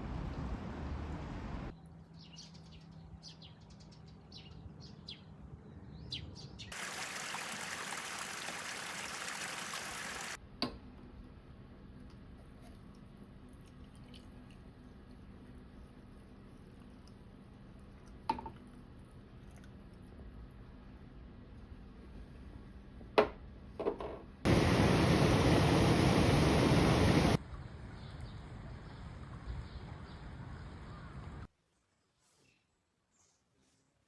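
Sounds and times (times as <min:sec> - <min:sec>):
rush of flowing water: 0:06.7 - 0:10.4, 0:24.5 - 0:27.4
birds chirping: 0:24.5 - 0:27.4.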